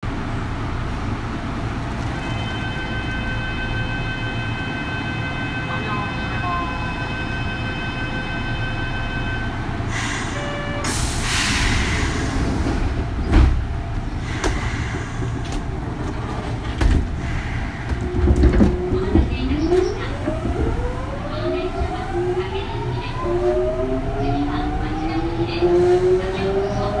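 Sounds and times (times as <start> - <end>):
train interior rumble: 0.0 - 27.0
air hissing: 9.9 - 12.6, 14.2 - 15.7
heavy thud: 13.3 - 19.4.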